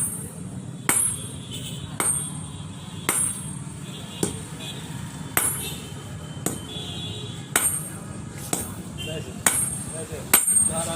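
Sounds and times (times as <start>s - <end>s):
hammer striking steel on anvil: 0.0s - 1.4s, 2.0s - 2.4s, 3.0s - 4.5s, 5.3s - 5.8s, 6.4s - 6.7s, 7.5s - 10.9s.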